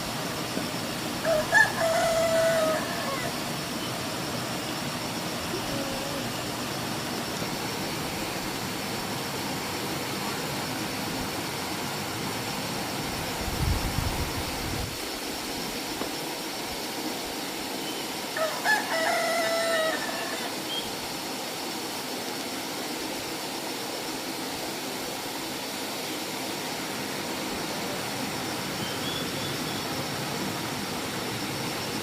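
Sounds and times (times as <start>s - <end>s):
steady background hiss: 0.0s - 32.0s
rooster crowing: 1.2s - 3.5s, 18.4s - 20.7s.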